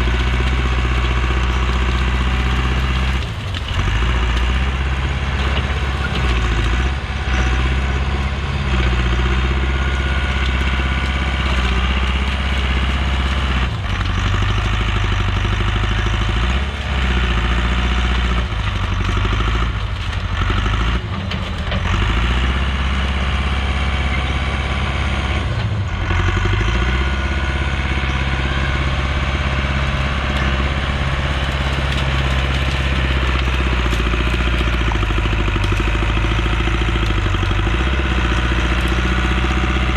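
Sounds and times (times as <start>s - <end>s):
sharp knocks and clatter: 0.0s - 7.9s, 26.7s - 39.9s
heavy machine engine running: 0.0s - 39.9s.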